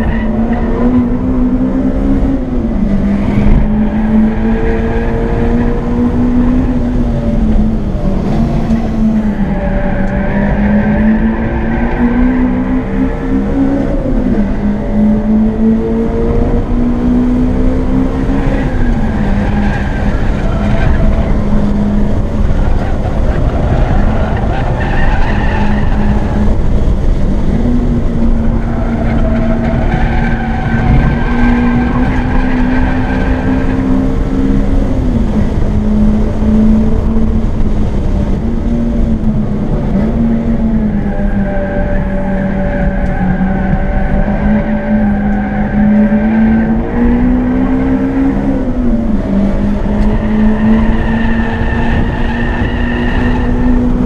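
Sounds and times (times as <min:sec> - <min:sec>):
car engine at full throttle: 0:00.0 - 0:54.0.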